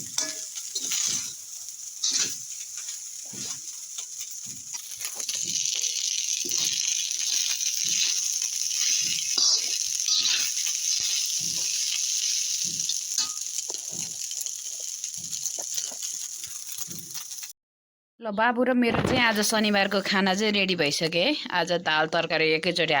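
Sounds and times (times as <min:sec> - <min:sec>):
fried rice sizzling in pan: 0:00.0 - 0:17.6.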